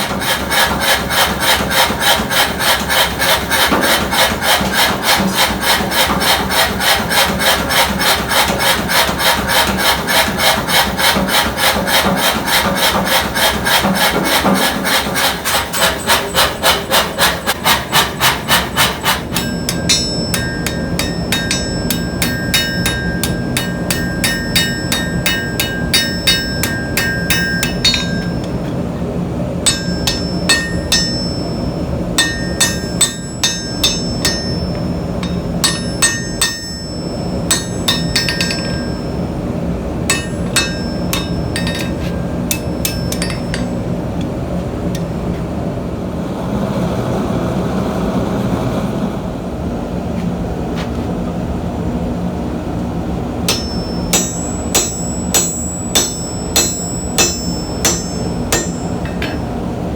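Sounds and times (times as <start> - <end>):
hammer striking steel on anvil: 0.0 - 44.3, 53.5 - 59.8.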